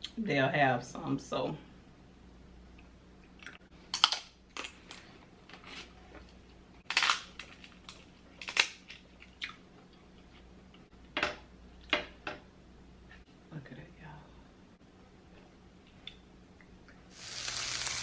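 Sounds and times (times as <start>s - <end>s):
crab shells cracking: 6.8s - 9.6s.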